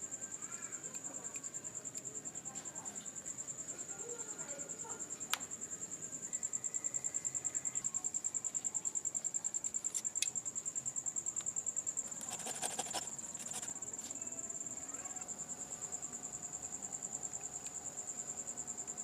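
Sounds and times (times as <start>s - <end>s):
insect trilling: 11.7s - 18.9s.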